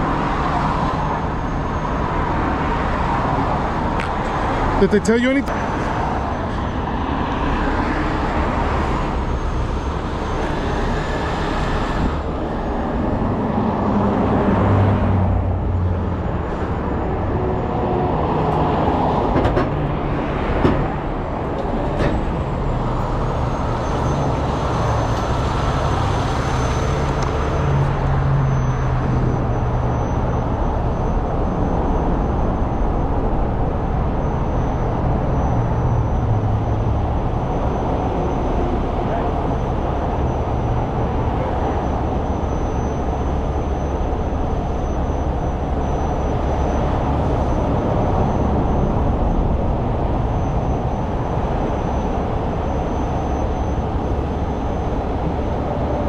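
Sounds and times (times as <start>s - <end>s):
truck diesel engine running: 15.4s - 28.1s.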